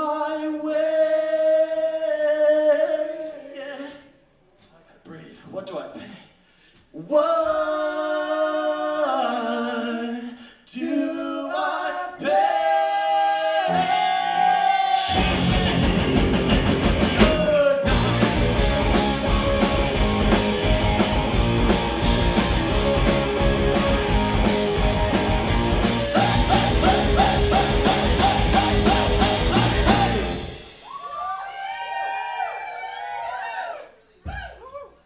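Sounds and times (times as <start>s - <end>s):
rock band playing live: 15.1s - 30.9s
high guitar figure: 17.9s - 30.8s
crashing cymbals: 17.9s - 31.4s.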